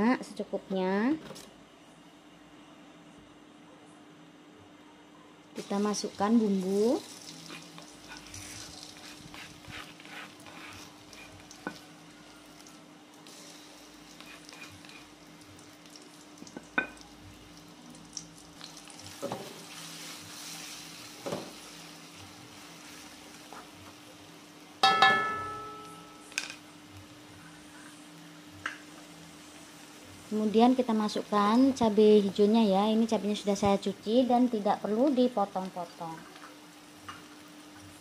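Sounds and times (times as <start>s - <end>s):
paste sizzling in oil: 5.6s - 17.1s, 18.5s - 23.4s
spatula scraping a pan: 7.5s - 11.4s, 14.2s - 15.1s
spatula clanging on a wok: 24.8s - 26.5s.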